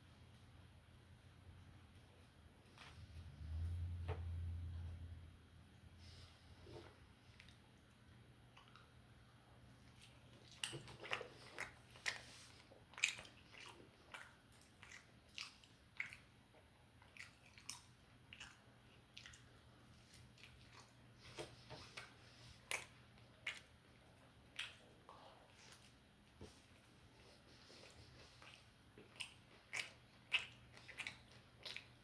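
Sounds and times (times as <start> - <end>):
person chewing food: 9.8 - 32.0.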